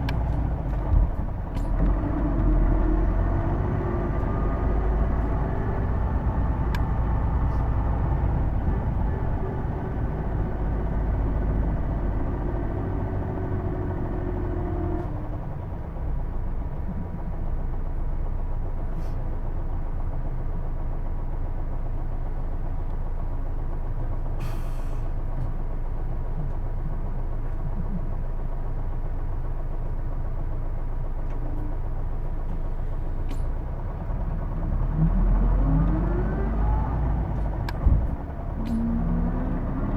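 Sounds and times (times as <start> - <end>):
bus engine running with whine: 0.0 - 39.9.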